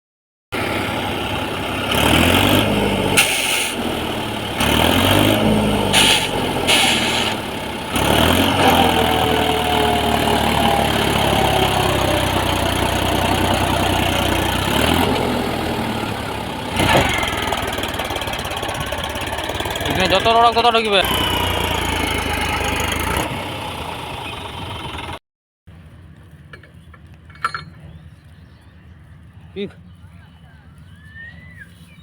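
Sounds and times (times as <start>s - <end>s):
tractor engine revving: 0.6s - 25.2s.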